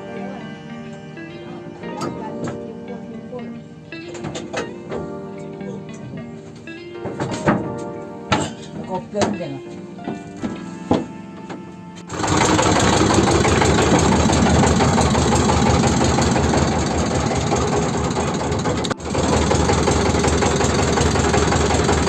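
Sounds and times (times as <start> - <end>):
riverboat engine running: 12.1 - 22.0.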